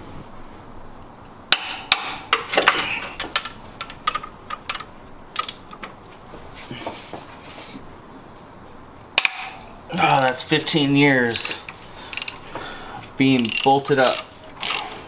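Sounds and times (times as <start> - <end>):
metallic clicks of hand tools: 5.4 - 5.7, 10.0 - 10.4, 11.3 - 12.4, 13.4 - 14.9.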